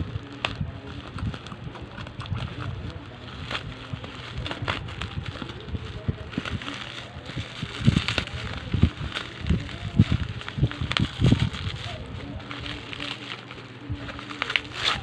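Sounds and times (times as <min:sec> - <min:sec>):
packaging rustling: 0:00.0 - 0:15.0.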